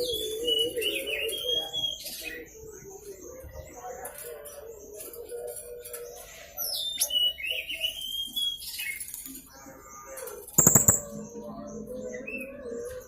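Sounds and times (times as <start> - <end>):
sharp clicks: 10.6 - 11.1.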